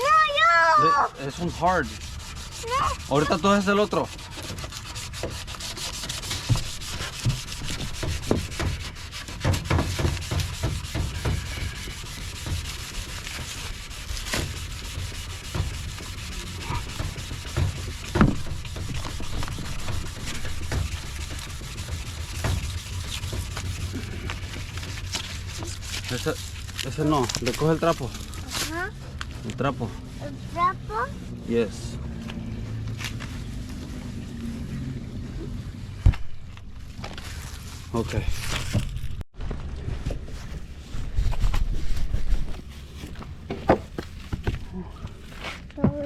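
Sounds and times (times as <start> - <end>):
sandpaper sanding plastic: 0.0 - 31.4
sharp knocks: 6.2 - 11.8, 15.4 - 23.9.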